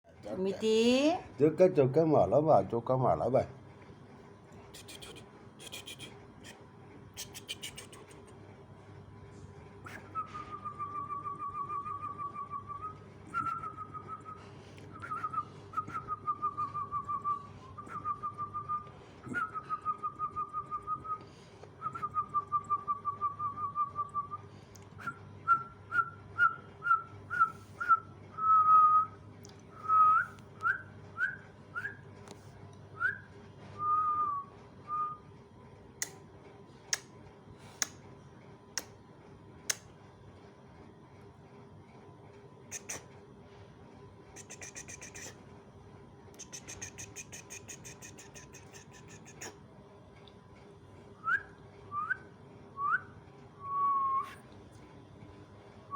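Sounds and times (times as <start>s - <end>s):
person whistling: 9.9s - 21.2s, 25.0s - 29.2s, 53.7s - 54.4s.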